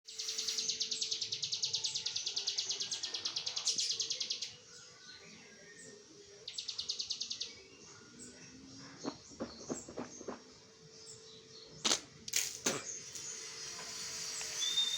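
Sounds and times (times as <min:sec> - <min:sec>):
bird singing rapid trill: 0:00.1 - 0:08.5, 0:12.9 - 0:14.9.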